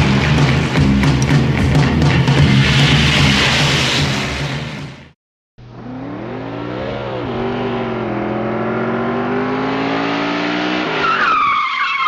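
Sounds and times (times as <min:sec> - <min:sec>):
car engine revving: 0:05.6 - 0:11.1.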